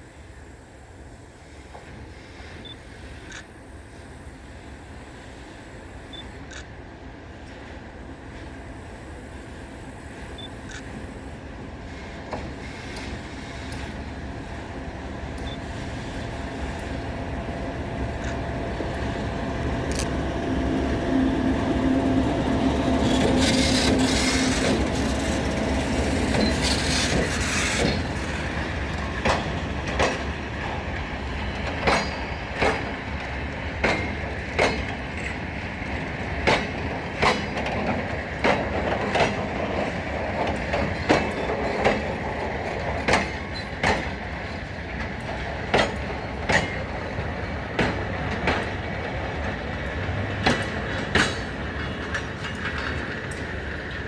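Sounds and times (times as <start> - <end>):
freight train passing: 0.0 - 54.0
wheels clicking over rail joints: 21.5 - 54.0.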